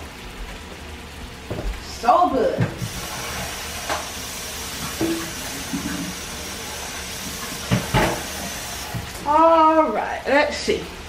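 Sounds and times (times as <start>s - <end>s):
sausage sizzling in butter: 2.8s - 9.5s.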